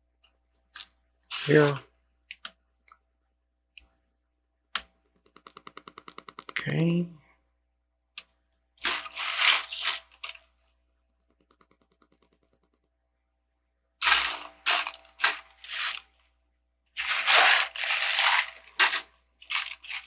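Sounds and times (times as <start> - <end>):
plastic pieces rattling: 8.8 - 10.4, 14.0 - 16.0, 17.0 - 20.0.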